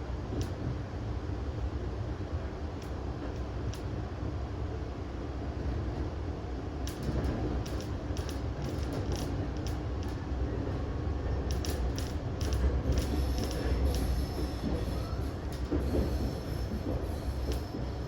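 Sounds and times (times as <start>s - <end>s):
train rumbling: 0.0s - 18.0s
faint high wheel squeal: 13.1s - 17.8s.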